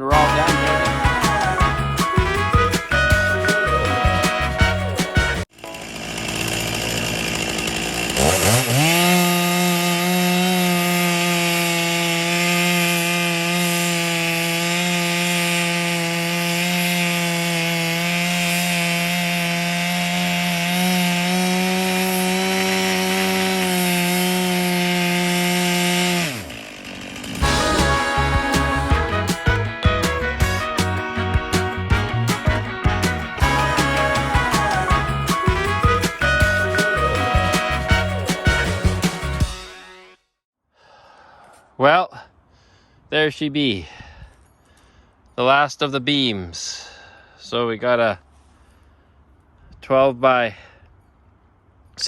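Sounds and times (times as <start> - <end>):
chainsaw cutting log: 0.0 - 40.1.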